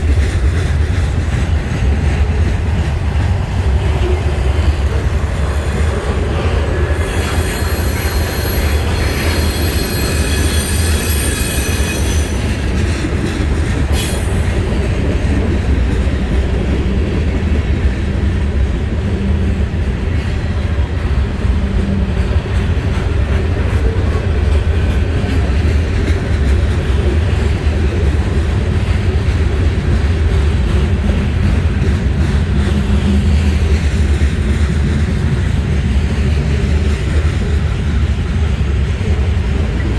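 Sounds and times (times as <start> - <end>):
train wheels rumbling on rail: 0.0 - 39.9
wheels clacking over rail joints: 0.0 - 39.9
high-pitched wheel squeal: 7.0 - 12.4.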